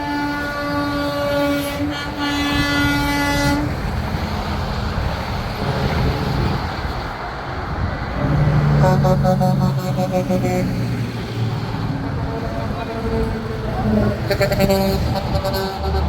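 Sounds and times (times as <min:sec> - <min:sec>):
truck air horn: 0:00.0 - 0:03.8, 0:08.7 - 0:16.0
diesel truck engines passing: 0:00.0 - 0:16.0
horn short toots: 0:08.8 - 0:11.0, 0:12.8 - 0:16.0.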